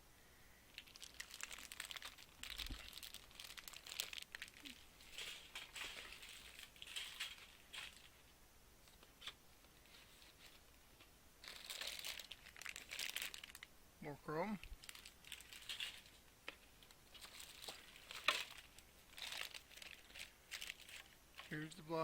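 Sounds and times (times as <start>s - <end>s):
plastic bags crinkling: 0.7s - 8.2s, 11.4s - 13.7s, 14.6s - 21.8s.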